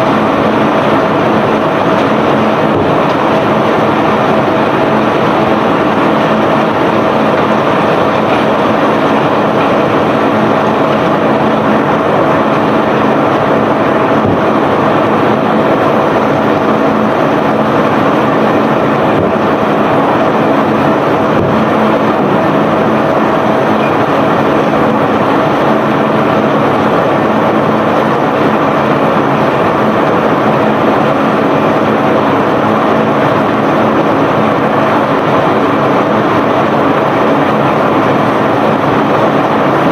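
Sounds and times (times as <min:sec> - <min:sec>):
machinery rumbling: 0:00.0 - 0:39.9
steady hum: 0:00.0 - 0:39.9.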